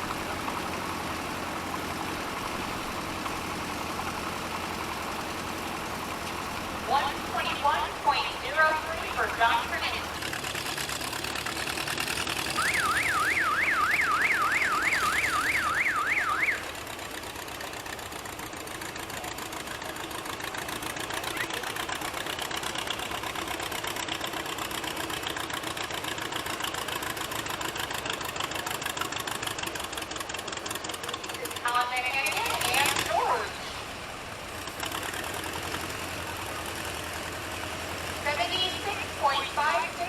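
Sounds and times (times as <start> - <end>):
tractor engine running: 0.0 - 40.0
warbling electronic siren: 12.5 - 16.8.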